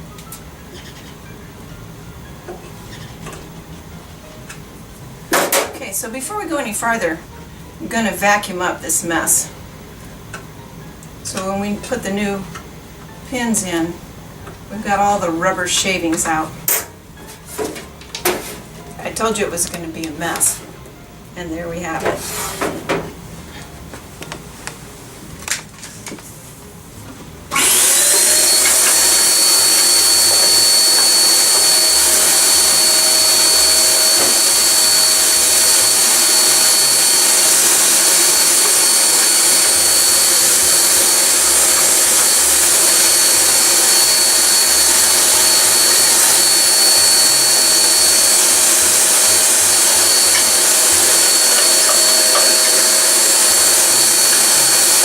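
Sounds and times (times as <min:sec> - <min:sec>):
vacuum cleaner whining: 0:27.5 - 0:55.0.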